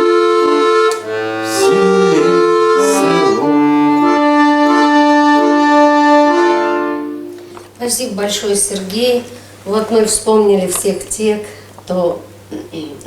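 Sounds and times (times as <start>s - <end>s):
accordion playing chords: 0.0s - 7.8s.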